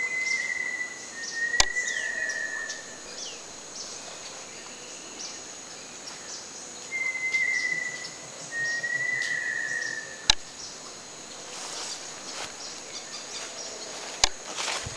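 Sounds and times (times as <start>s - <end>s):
bird whistling: 0.0s - 4.4s, 6.9s - 13.4s
sharp click: 1.6s - 1.8s, 10.3s - 10.5s, 14.2s - 14.4s
high insect buzz: 1.6s - 14.9s.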